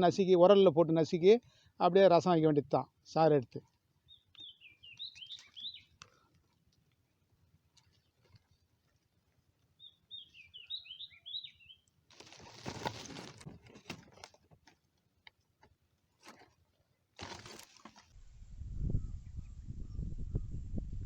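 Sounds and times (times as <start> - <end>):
small bird chirping: 4.0 - 6.1, 9.8 - 11.9
rustling scraping noise: 12.1 - 14.8, 16.1 - 16.6, 17.2 - 18.2.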